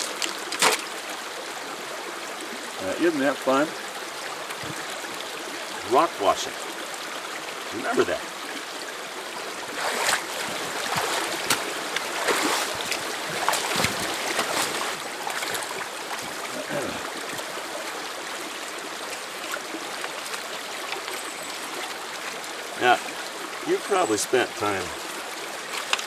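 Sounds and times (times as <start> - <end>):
rocks splashing and knocking: 0.0 - 1.1, 4.4 - 4.9, 9.7 - 17.5, 25.6 - 26.0
creek water running over rocks: 0.0 - 26.0.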